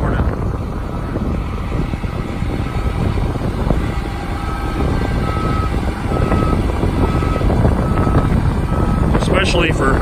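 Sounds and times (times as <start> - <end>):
diesel truck engine running: 0.0 - 10.0
wind buffeting microphone: 0.0 - 10.0
high-pitched beeping alarm: 1.9 - 9.2.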